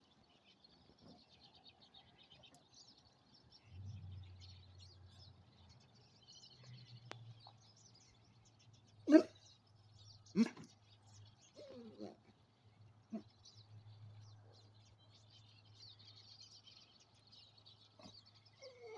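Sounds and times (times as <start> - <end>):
small birds chirping faintly: 0.0 - 18.9
dog barking: 9.1 - 9.4, 10.4 - 10.7.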